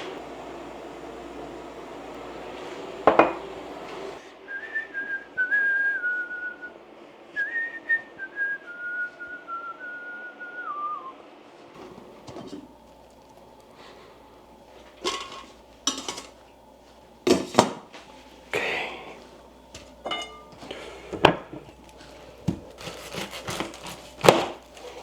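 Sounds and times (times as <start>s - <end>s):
kitchen noise: 0.0s - 4.2s, 11.8s - 25.0s
person whistling a tune: 4.4s - 6.8s, 7.4s - 11.2s.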